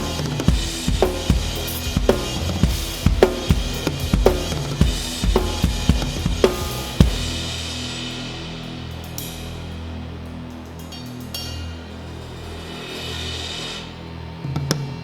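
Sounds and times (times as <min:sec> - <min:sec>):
drum kit playing: 0:00.0 - 0:09.8
rock song backing track: 0:00.0 - 0:15.0.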